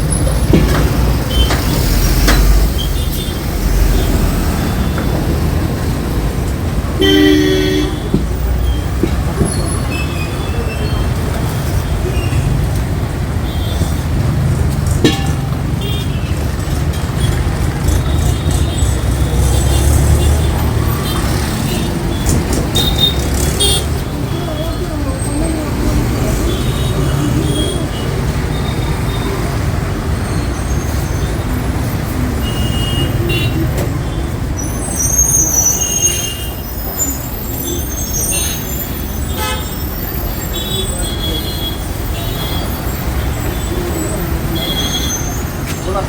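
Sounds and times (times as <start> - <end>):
traffic rumble: 0.0 - 46.0
car horns honking: 0.5 - 5.5, 7.0 - 10.7, 14.9 - 25.3, 26.2 - 29.5, 32.4 - 34.3, 37.6 - 46.0.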